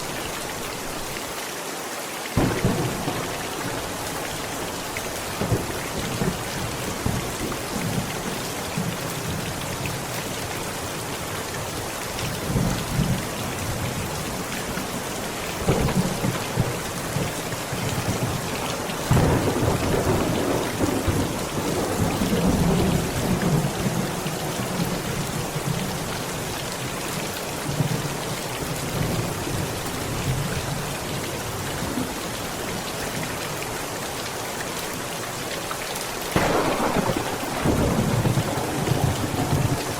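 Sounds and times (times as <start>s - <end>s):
heavy rain on a tent: 0.0s - 39.9s
thunder rumbling: 2.4s - 8.1s, 15.6s - 24.8s, 36.4s - 39.9s.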